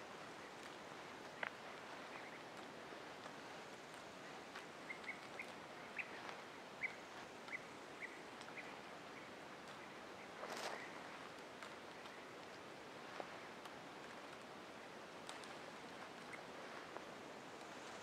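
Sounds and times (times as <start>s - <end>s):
steady hiss: 0.0s - 18.0s
bird chirping: 4.8s - 6.2s
light clicks: 15.2s - 16.4s.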